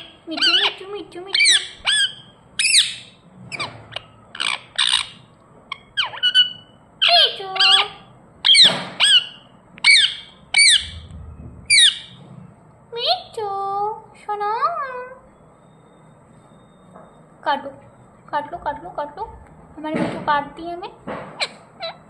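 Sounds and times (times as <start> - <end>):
parrot giving high calls: 0.0 - 3.2, 3.9 - 11.0.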